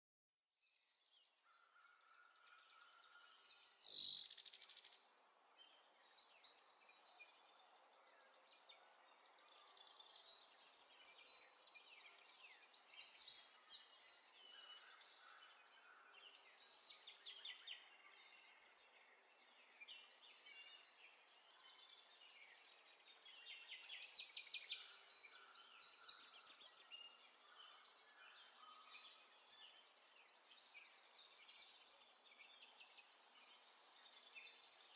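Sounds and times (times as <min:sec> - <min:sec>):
songbirds chirping and singing: 0:00.4 - 0:34.9.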